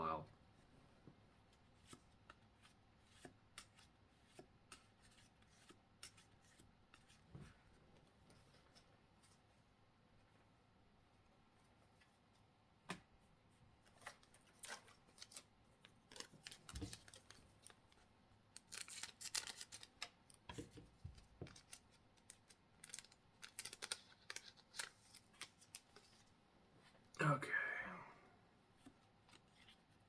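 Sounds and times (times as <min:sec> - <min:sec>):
cards and foil wrapper crinkling: 0:14.0 - 0:17.8, 0:18.5 - 0:20.4, 0:21.5 - 0:26.2.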